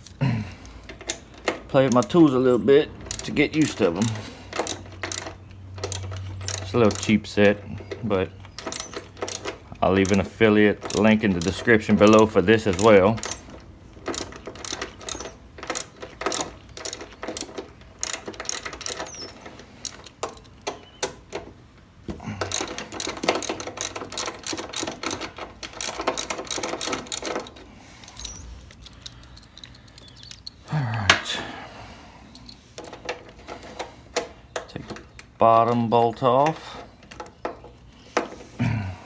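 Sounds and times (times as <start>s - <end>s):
socket ratchet clicking: 0.8s - 21.4s, 22.4s - 30.7s.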